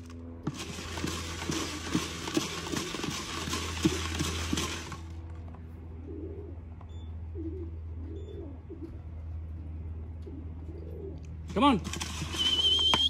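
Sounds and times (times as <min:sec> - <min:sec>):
steady low hum: 0:00.0 - 0:13.0
pigeons cooing: 0:06.0 - 0:11.4.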